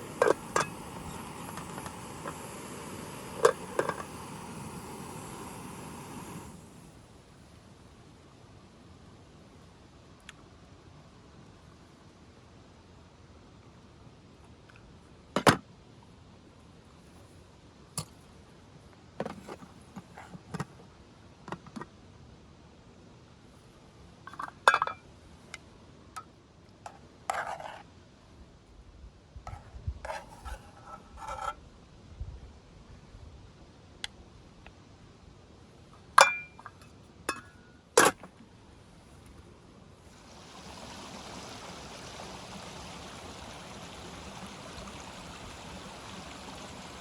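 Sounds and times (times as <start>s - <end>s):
cookware and utensils clinking: 36.2s - 38.2s.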